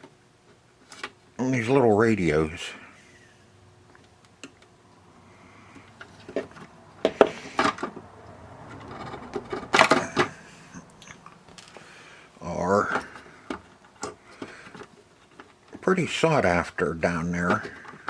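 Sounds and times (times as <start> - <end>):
small hard parts clicking and rattling: 5.7 - 12.0, 12.6 - 16.2, 17.1 - 18.0.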